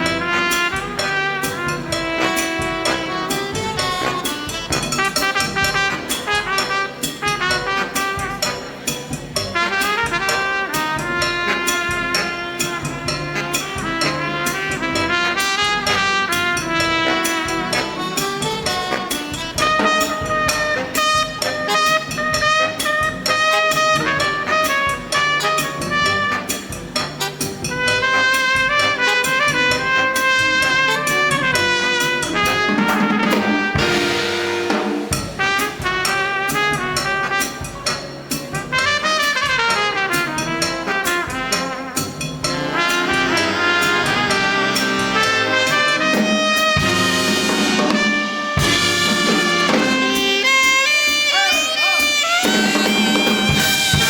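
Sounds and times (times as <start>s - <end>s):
big band playing cha-cha: 0.0s - 54.0s
brass sustained chords: 27.7s - 37.8s, 38.5s - 54.0s.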